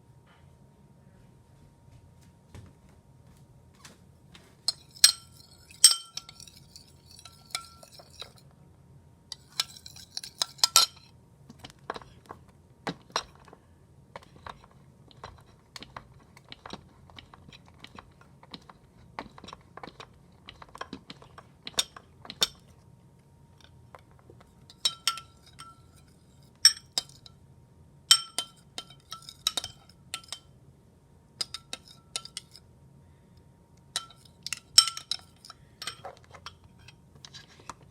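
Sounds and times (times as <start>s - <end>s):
spoon clinking against bowl: 4.7s - 8.4s, 9.3s - 11.1s, 24.7s - 27.4s, 28.1s - 30.5s, 31.4s - 32.6s, 33.9s - 37.0s.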